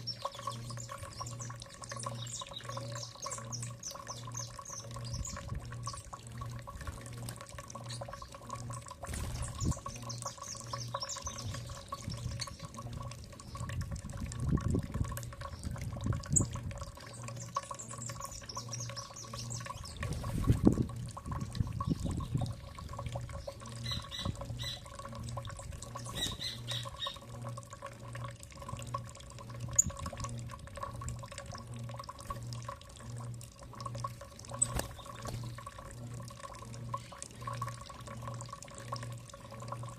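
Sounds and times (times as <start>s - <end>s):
small birds chirping: 0.0s - 6.2s, 7.8s - 13.7s, 15.4s - 20.3s, 21.4s - 25.0s, 25.6s - 27.3s, 34.5s - 35.7s
pulsing low hum: 0.0s - 39.9s
trickling water: 0.0s - 39.9s.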